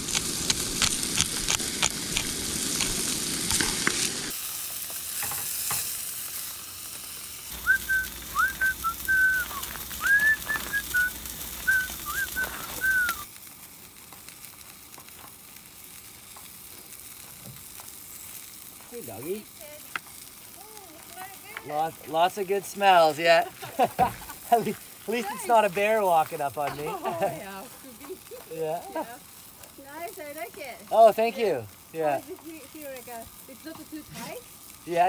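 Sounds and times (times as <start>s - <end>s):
fish sizzling in a frying pan: 0.0s - 35.0s
hot oil popping: 0.0s - 35.0s
high whistled notes: 7.5s - 13.3s.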